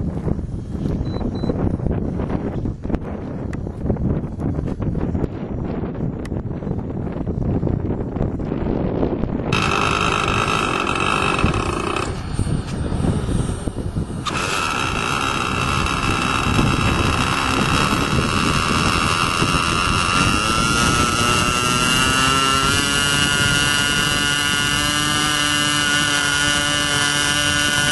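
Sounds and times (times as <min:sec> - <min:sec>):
model jet engine whine: 0:09.4 - 0:27.9.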